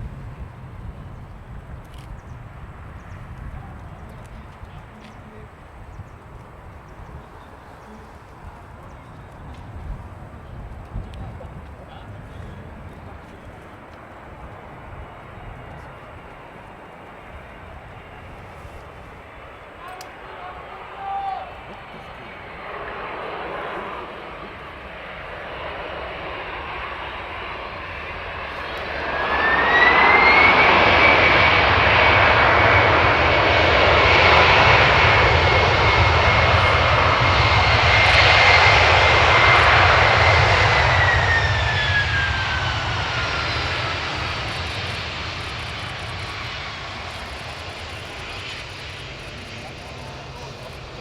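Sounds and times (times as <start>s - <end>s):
jet engines reverse thrust: 21.5s - 51.0s.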